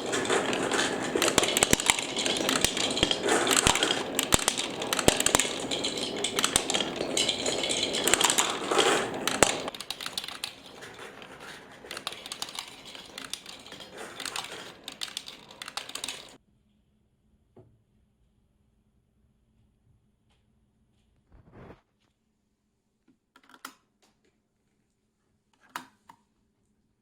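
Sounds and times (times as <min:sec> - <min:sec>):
marbles rattling along a marble run: 0:00.0 - 0:16.4.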